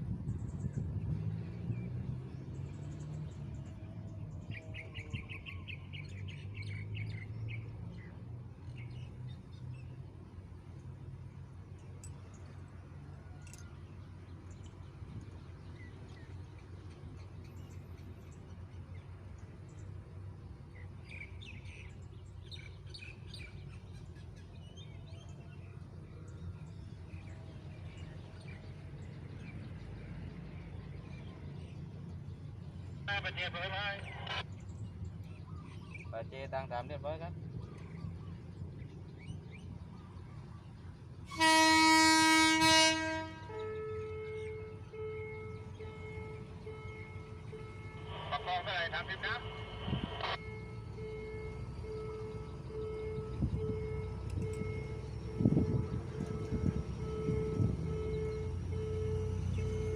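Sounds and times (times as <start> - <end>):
low engine hum: 0.0 - 59.9
birds chirping: 0.4 - 12.7, 13.3 - 59.9
steady low rumble: 45.6 - 59.8.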